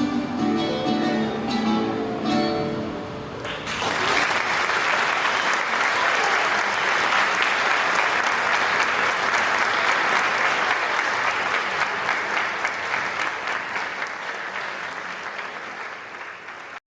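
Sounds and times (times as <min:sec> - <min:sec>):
audience applauding: 0:03.4 - 0:16.8.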